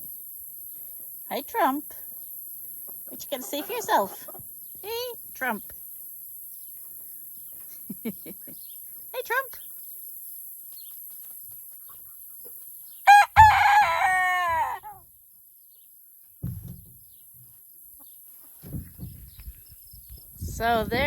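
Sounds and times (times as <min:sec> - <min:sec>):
rooster crowing: 0:13.1 - 0:15.0.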